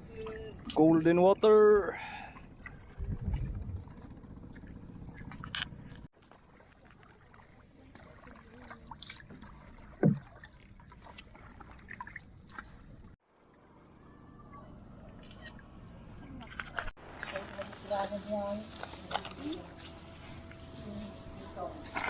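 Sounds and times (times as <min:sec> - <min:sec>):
water sloshing and dripping: 0:01.8 - 0:13.7, 0:16.3 - 0:22.0
paddle knock: 0:09.9 - 0:10.5.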